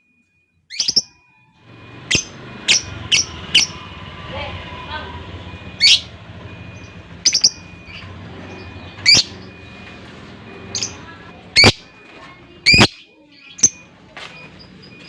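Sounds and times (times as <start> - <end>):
lovebird shrill chirping: 5.7 - 6.1, 6.8 - 8.0.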